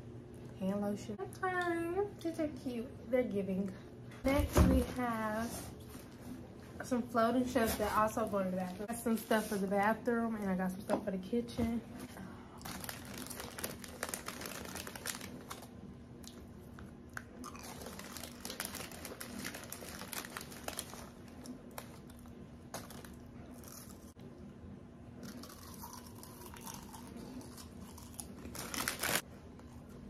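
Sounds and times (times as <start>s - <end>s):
faint steady hum: 0.0s - 30.0s
packaging crinkling: 12.6s - 15.7s, 17.4s - 23.9s, 28.0s - 29.2s
person crunching a snack: 17.1s - 24.1s, 25.2s - 29.7s.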